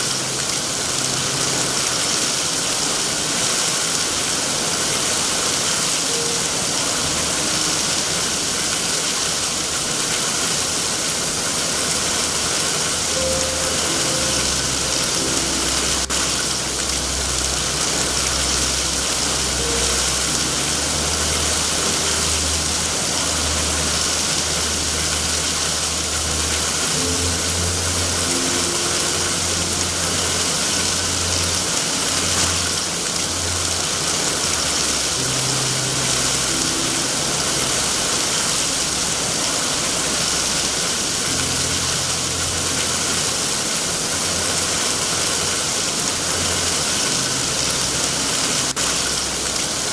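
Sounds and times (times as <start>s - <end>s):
heavy rain hissing: 0.0s - 49.9s
low rumble: 12.8s - 40.8s.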